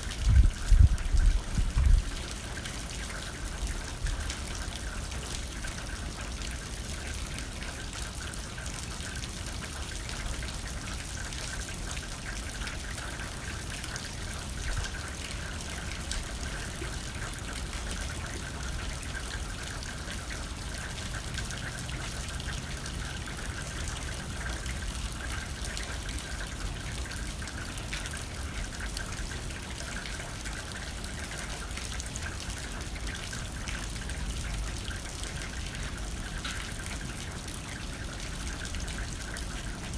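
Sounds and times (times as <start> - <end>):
low wind rumble: 0.0 - 2.2
rain on a window pane: 0.0 - 39.9.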